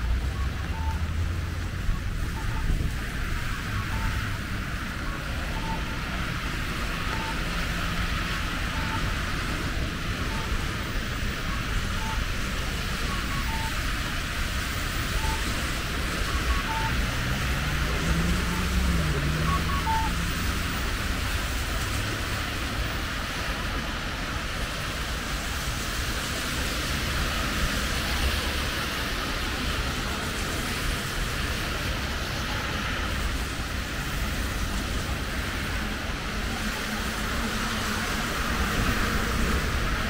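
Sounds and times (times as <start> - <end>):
city traffic rumble: 0.0 - 40.0
rain hiss: 0.1 - 40.0
faint short beeps: 0.2 - 1.2, 3.6 - 4.3
vehicle passing: 15.8 - 22.8.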